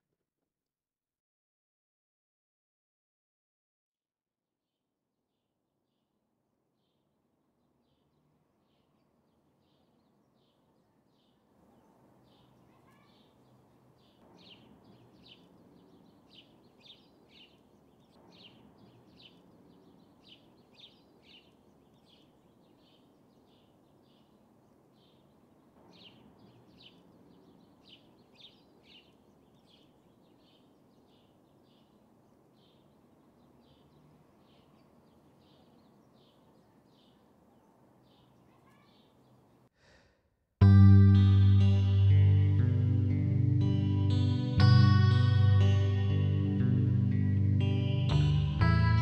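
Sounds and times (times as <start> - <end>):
faint bird chirping: 6.8 - 39.7
low background hiss: 7.3 - 39.7.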